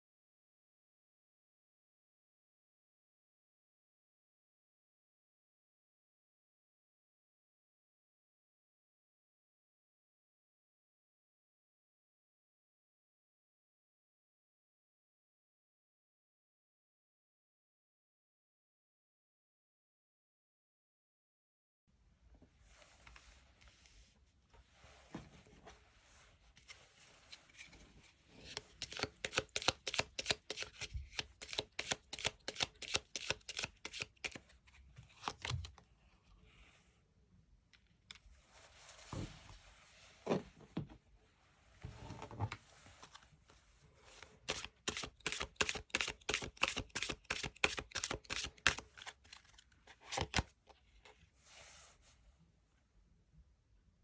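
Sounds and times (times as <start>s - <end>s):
cards being shuffled: 26.6s - 27.8s, 28.4s - 35.8s, 44.1s - 50.6s.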